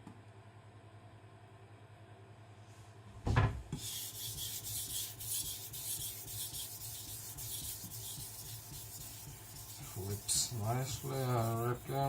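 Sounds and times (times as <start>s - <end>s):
knife rasping on whetstone: 3.8s - 12.0s.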